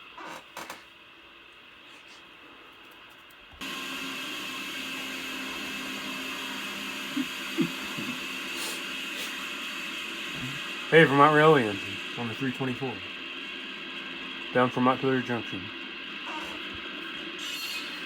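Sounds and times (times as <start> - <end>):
diesel locomotive hum and hiss: 3.6 - 18.0.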